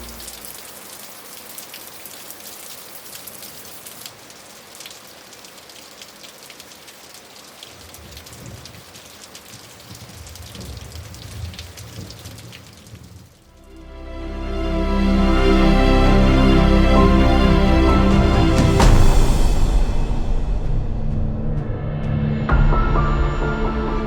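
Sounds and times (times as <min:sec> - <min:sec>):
low rumble: 0:00.0 - 0:00.4, 0:13.5 - 0:24.0
steady rain falling: 0:00.0 - 0:20.1.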